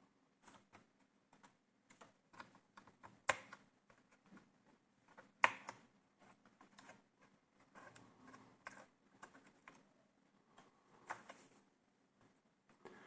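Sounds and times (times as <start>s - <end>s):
clicks and taps on laptop parts: 0.4s - 7.0s.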